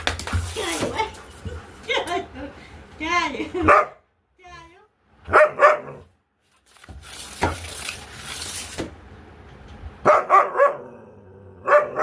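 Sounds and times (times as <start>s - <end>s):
dog barking: 3.6s - 4.0s, 5.3s - 6.1s, 10.0s - 12.0s.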